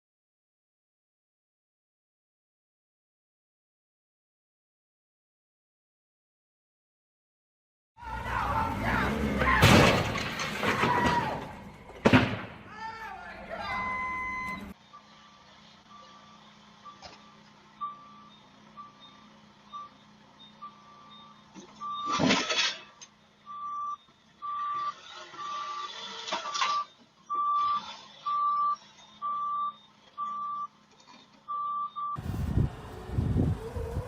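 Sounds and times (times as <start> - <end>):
reversing alarm beeping: 13.4 - 22.2, 22.8 - 30.8, 31.4 - 32.2.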